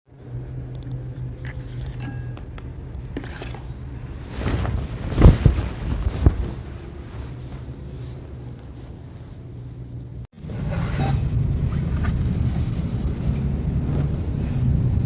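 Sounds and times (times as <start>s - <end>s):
steady low hum: 0.1s - 15.0s
rustling handling noise: 0.9s - 10.2s
dull thumps: 4.3s - 7.5s.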